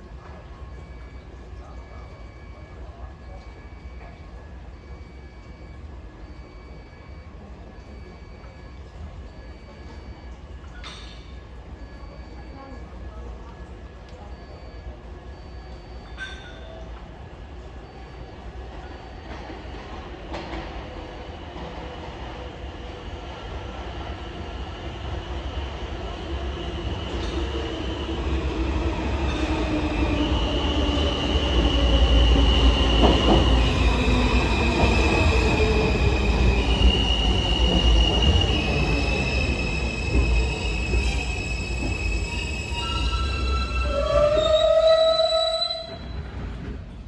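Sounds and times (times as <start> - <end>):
subway train rumble: 0.0 - 47.0
high wheel squeal: 31.7 - 46.4.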